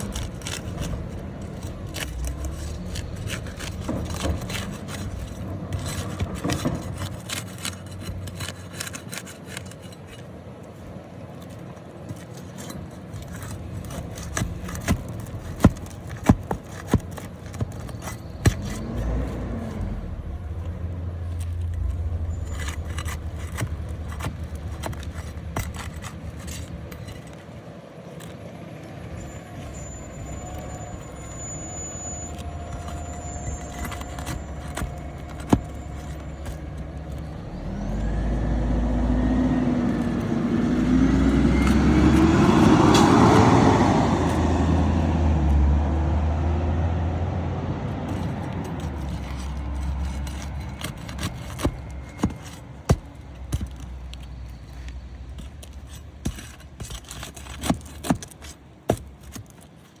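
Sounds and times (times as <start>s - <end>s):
vehicle passing by: 32.3s - 52.7s
sharp clicks and knocks: 47.9s - 60.0s.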